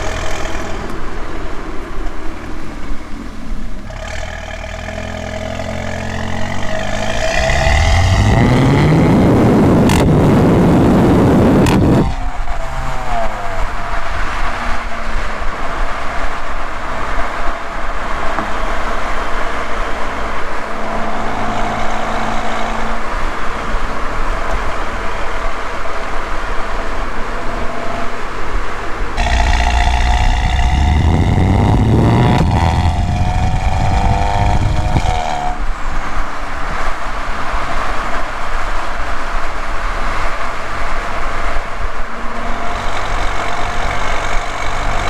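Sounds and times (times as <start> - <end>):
exhaust crack: 0.0 - 24.4, 29.0 - 37.0, 40.3 - 45.0
exhaust crackling: 0.0 - 25.2, 28.8 - 36.8, 40.3 - 45.0
car accelerating with raspy exhaust: 0.0 - 45.0
road noise: 0.0 - 45.0.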